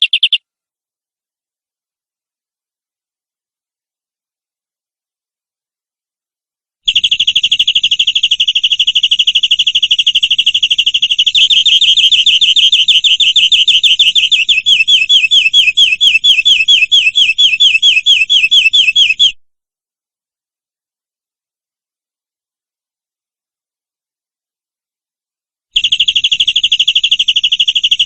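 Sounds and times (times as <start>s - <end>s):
canary singing trills: 0.0s - 0.4s, 6.9s - 19.4s.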